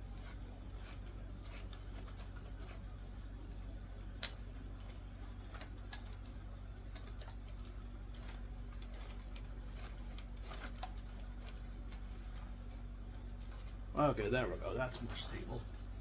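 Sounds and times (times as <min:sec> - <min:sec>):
plastic parts clicking and tapping: 0:04.2 - 0:12.0.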